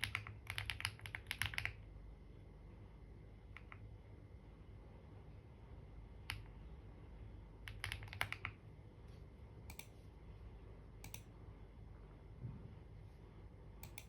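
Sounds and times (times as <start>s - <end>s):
keyboard keys clicking: 0.0s - 1.8s, 7.7s - 8.6s.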